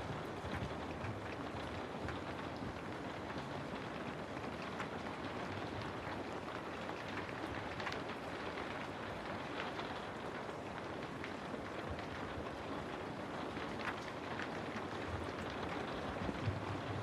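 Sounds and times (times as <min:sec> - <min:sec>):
rain pattering on surfaces: 0:00.0 - 0:17.0.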